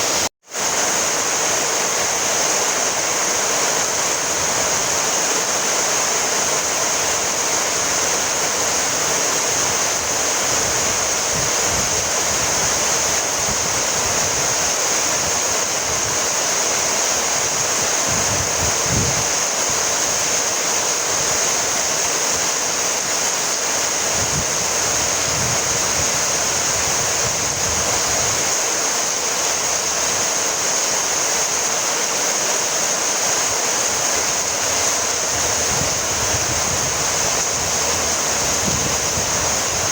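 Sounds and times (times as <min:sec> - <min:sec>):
steady rainfall: 0:00.0 - 0:39.9
low rumbles: 0:35.0 - 0:39.9.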